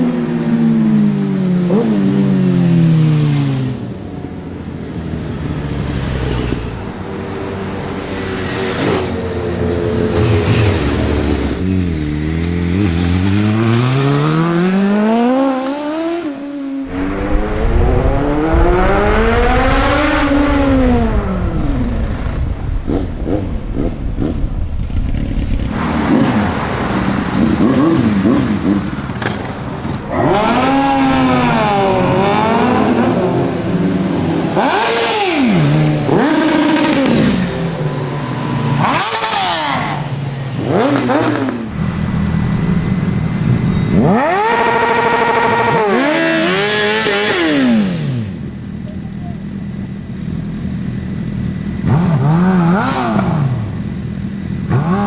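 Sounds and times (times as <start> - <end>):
motorcycle engines revving: 0.0 - 55.0
motorcycle passing by: 5.0 - 48.4.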